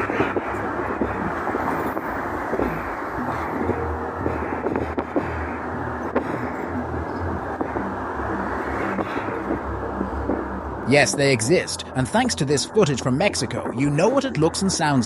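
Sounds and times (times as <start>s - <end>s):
wind on microphone: 0.0s - 9.6s
low rumbling drone: 0.0s - 15.0s.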